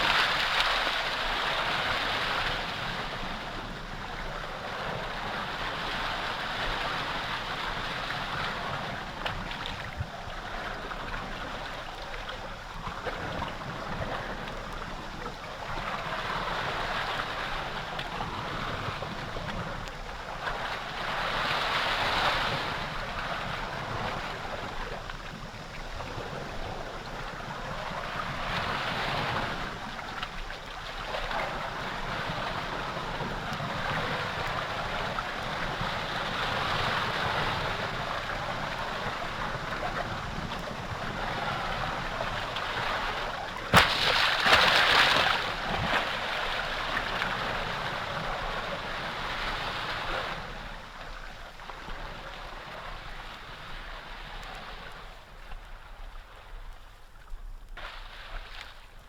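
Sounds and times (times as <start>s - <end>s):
sea water rushing: 0.0s - 55.1s
water splashing: 43.6s - 46.6s.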